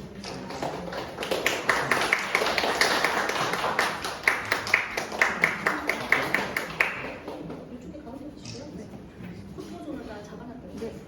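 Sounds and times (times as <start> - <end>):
audience applauding: 0.2 - 7.4.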